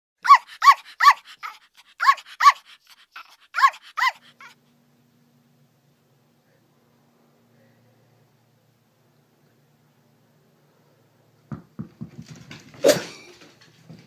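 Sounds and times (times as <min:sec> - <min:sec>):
puppy yapping: 0:00.2 - 0:04.6.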